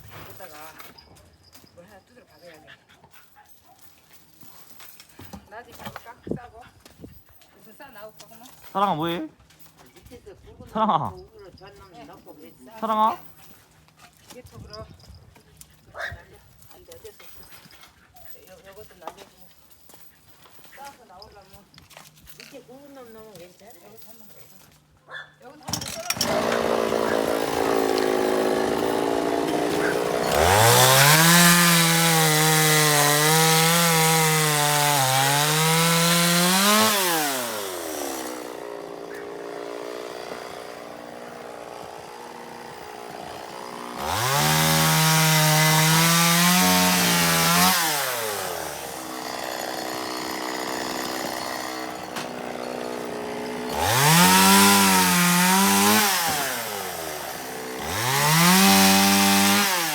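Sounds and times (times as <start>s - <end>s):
chainsaw cutting logs: 25.4s - 59.9s.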